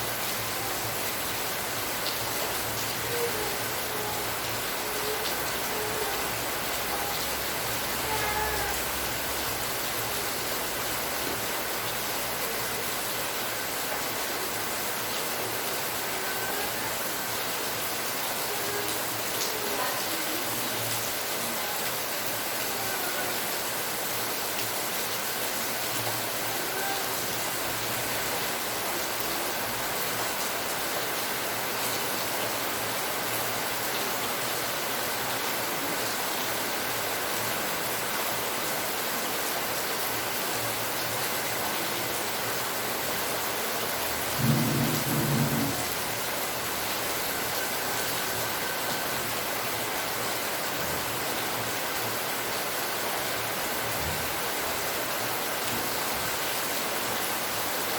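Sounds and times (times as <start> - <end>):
heavy rainfall: 0.0 - 57.9.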